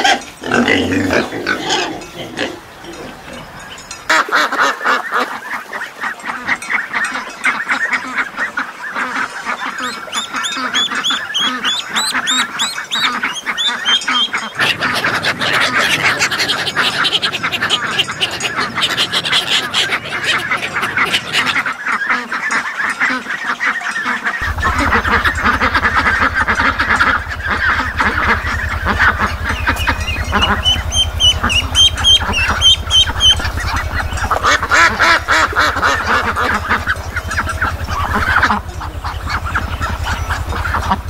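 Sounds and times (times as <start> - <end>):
steady low hum: 0.0 - 4.1, 9.9 - 21.8, 24.4 - 41.0
ducklings peeping: 0.0 - 41.0
ducks quacking: 0.0 - 41.0.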